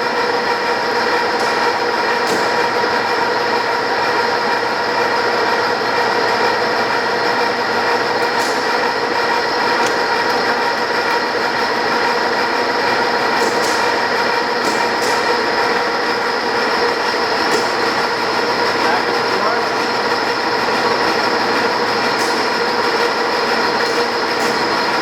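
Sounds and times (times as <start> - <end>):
lathe running with gear whine: 0.0 - 25.0.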